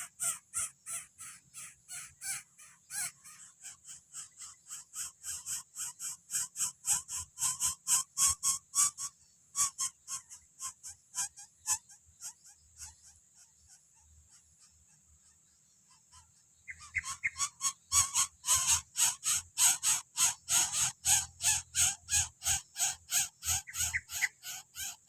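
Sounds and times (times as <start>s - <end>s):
bird nestling raspy begging calls: 16.7s - 25.0s.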